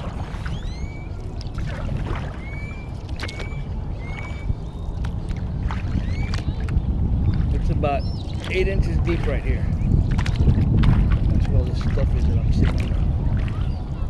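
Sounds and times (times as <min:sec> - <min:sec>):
low rumble: 0:00.0 - 0:14.0
paddle splashing water: 0:00.0 - 0:14.0
bird whistled calls: 0:00.3 - 0:01.3, 0:02.2 - 0:05.0, 0:05.8 - 0:06.7, 0:07.3 - 0:08.6.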